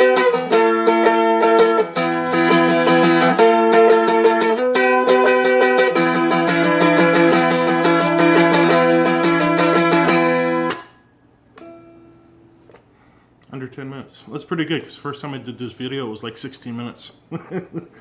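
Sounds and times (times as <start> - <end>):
dulcimer strummed quickly: 0.0 - 10.9.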